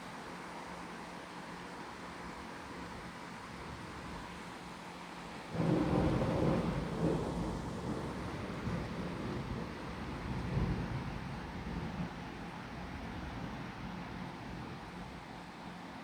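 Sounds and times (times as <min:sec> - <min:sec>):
steady rain: 0:00.0 - 0:16.0
thunder rumbling: 0:05.6 - 0:09.7.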